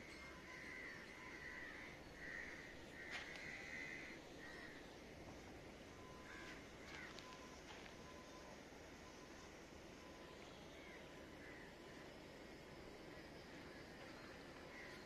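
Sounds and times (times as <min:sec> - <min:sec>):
bird calling faintly: 0:06.0 - 0:09.4.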